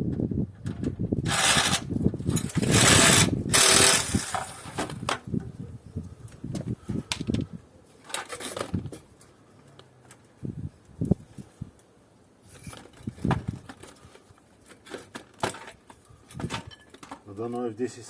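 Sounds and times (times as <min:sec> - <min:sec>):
harsh rasping bursts: 0:01.3 - 0:01.9, 0:02.5 - 0:04.7
metal knocks and clatter: 0:14.8 - 0:17.3.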